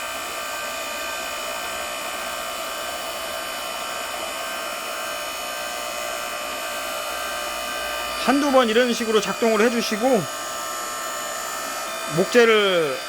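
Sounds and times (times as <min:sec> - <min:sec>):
log splitter motor whining: 0:00.0 - 0:13.0.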